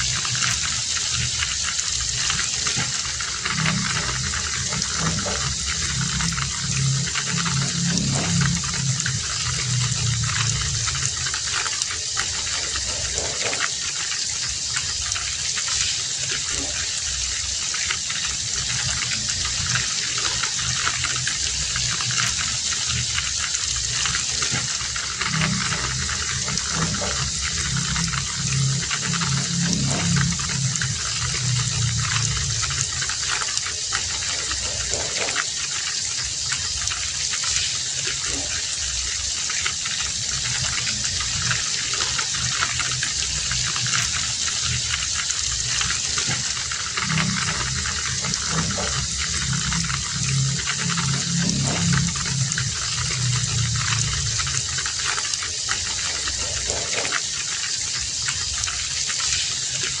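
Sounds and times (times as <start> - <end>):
heavy rain falling: 0.0 - 60.0
low swelling sound: 2.3 - 11.6, 23.9 - 33.3, 45.6 - 55.2.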